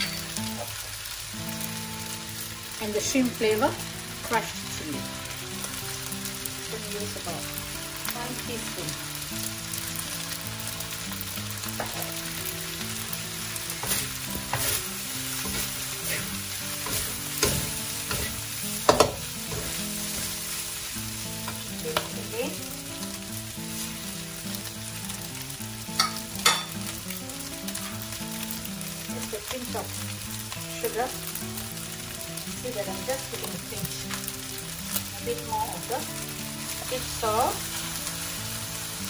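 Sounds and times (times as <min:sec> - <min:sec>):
rice sizzling in a wok: 0:00.0 - 0:39.0
metal spatula scraping wok: 0:12.8 - 0:21.5.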